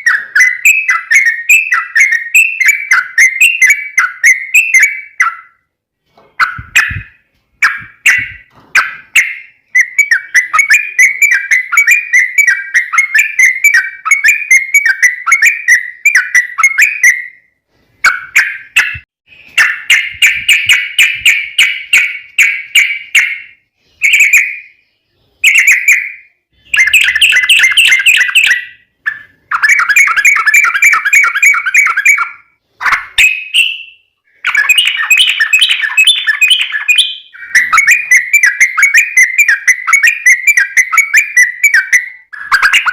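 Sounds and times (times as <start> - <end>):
bird singing bubbling phrases: 18.0 - 42.9.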